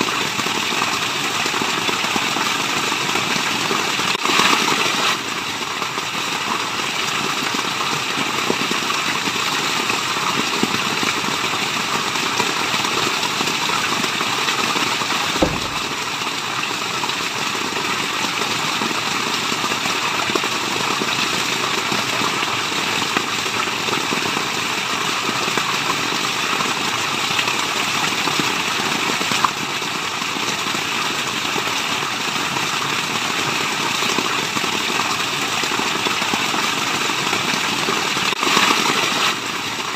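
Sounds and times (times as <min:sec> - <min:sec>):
rushing falling water: 0:00.0 - 0:39.9
dull low thump: 0:15.3 - 0:16.2.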